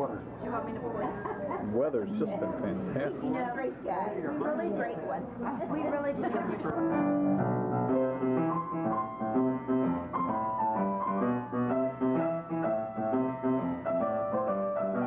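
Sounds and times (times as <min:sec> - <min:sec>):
piano music: 0:06.7 - 0:15.0.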